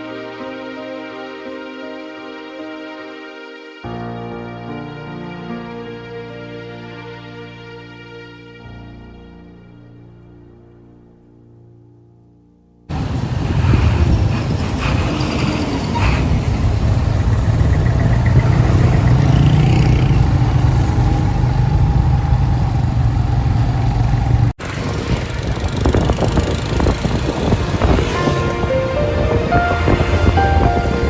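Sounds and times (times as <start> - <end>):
road noise: 12.9 - 31.0
wind noise: 12.9 - 31.0
motorcycle engine rumbling: 16.2 - 31.0.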